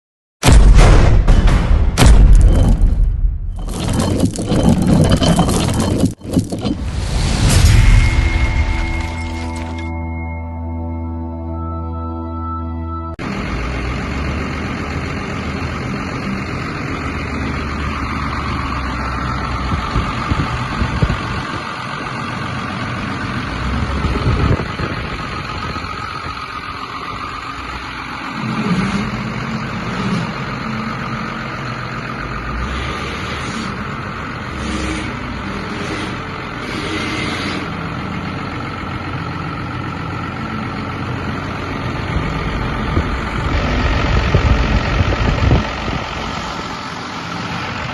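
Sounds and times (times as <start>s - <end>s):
diesel engine idling: 13.2s - 47.9s.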